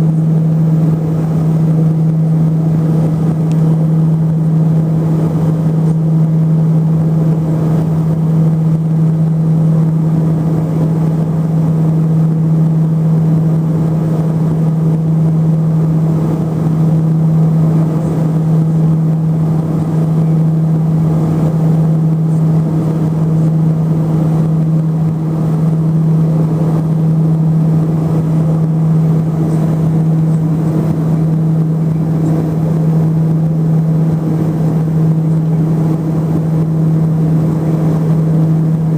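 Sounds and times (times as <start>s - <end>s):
low propeller hum: 0.0s - 38.9s
turboprop engines droning: 0.0s - 38.9s.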